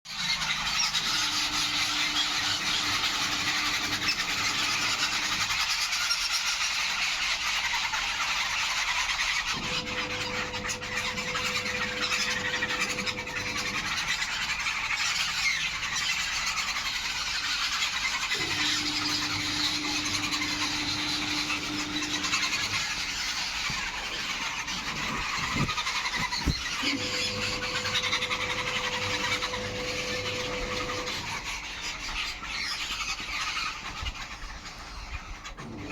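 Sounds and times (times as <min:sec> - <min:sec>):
small birds chirping: 0:00.1 - 0:35.9
steady low hum: 0:09.6 - 0:14.1, 0:18.3 - 0:31.4.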